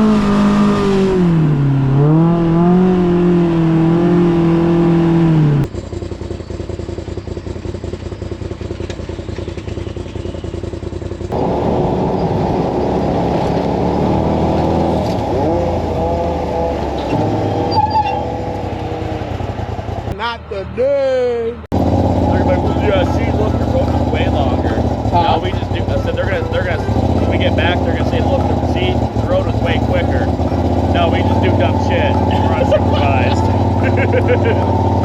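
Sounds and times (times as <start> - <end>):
engine revving: 0.0 - 35.0
rough engine rumble: 0.0 - 35.0
muffled engine note: 21.7 - 35.0.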